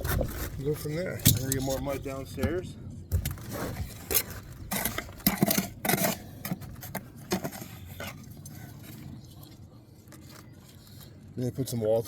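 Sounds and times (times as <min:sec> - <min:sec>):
tools scraping: 0:03.1 - 0:11.2.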